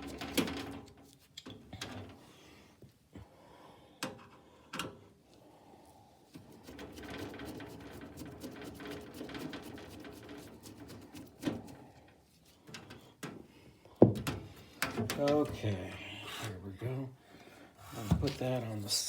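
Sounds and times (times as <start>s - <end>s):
rustling with small clicks: 6.3s - 13.4s.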